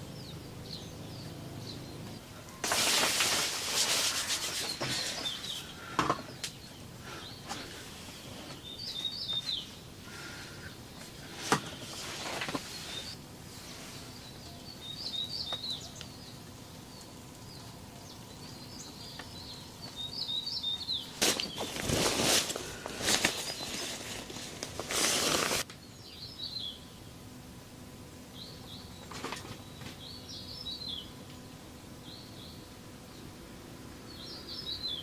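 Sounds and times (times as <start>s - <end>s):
small birds chirping: 0.0s - 27.4s, 28.2s - 35.0s
rubbing or scraping noises: 2.6s - 5.6s, 11.3s - 14.2s, 21.2s - 25.7s.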